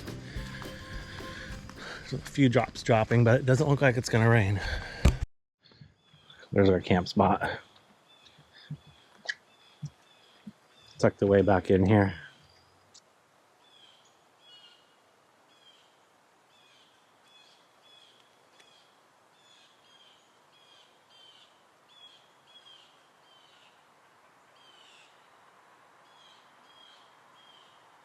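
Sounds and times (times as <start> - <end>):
steady background hiss: 6.4 - 28.0.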